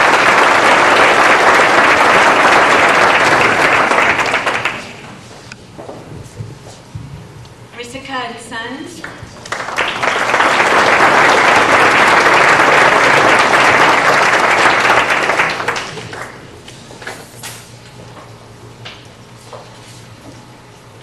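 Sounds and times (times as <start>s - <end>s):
audience applauding: 0.0s - 5.1s, 9.0s - 16.5s.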